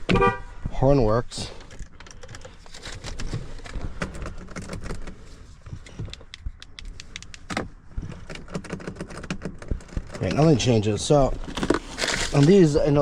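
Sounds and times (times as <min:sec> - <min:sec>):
clicks and rattles of controls: 0:01.4 - 0:10.4.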